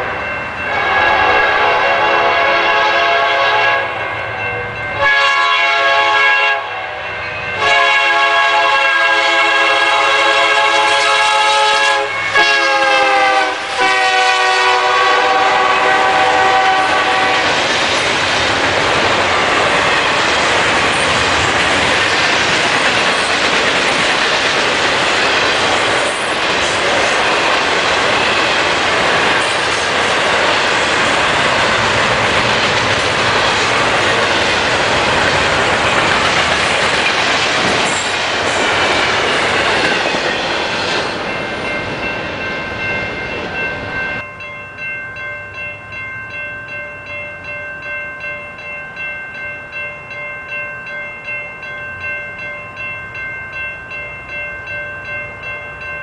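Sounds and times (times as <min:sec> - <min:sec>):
locomotive air horn blasts: 0:00.7 - 0:04.0, 0:05.0 - 0:07.0, 0:07.6 - 0:17.5
freight cars rolling on rails: 0:12.0 - 0:44.2.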